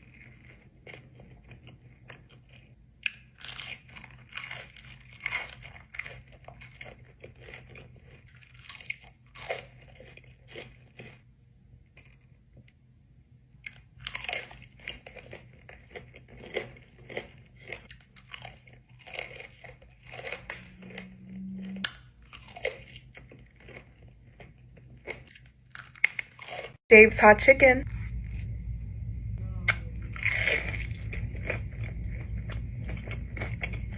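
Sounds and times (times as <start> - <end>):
crunchy chewing: 0.0 - 11.3, 13.6 - 26.8, 29.7 - 33.9.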